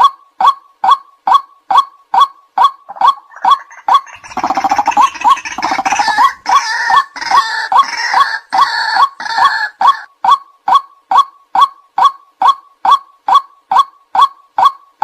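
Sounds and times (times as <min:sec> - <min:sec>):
bird harsh chattering: 0:02.9 - 0:10.1.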